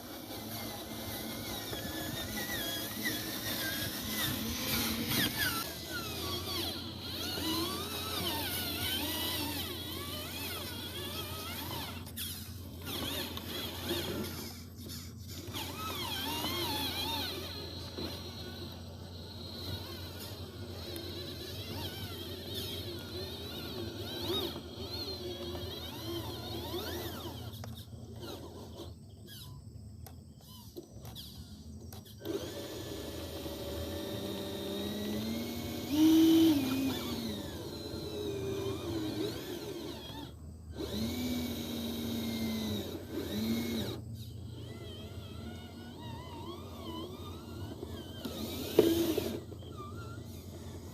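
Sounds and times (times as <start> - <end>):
small electric motors whining: 0.0 - 50.9.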